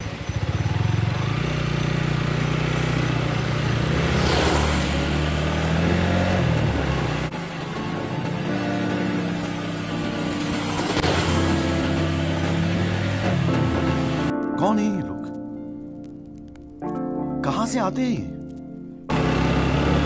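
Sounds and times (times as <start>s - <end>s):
motorcycle engine running: 0.0s - 14.3s, 19.1s - 20.0s.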